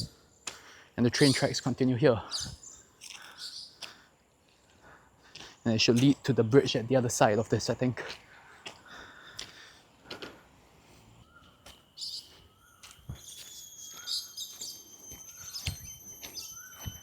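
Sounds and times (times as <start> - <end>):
high bird chirps: 1.2 - 1.7, 2.3 - 3.8, 11.3 - 17.0
bird rising call: 11.3 - 17.0
steady high-pitched tone: 11.7 - 17.0.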